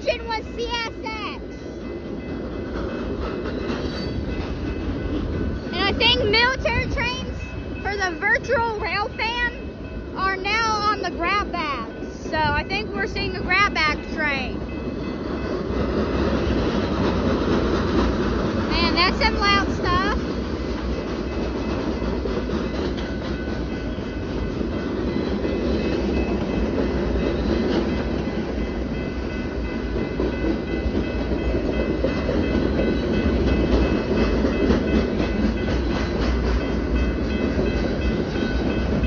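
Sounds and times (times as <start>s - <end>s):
high ringing tones: 0.0s - 17.1s
freight train rumbling: 0.0s - 39.0s
wheels clacking over rail joints: 2.0s - 9.6s, 10.4s - 39.0s.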